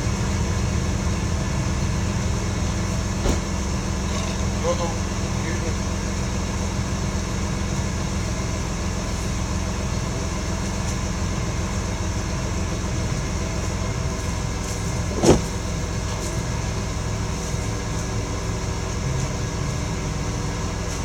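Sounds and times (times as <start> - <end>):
sharp knock: 15.1 - 15.5.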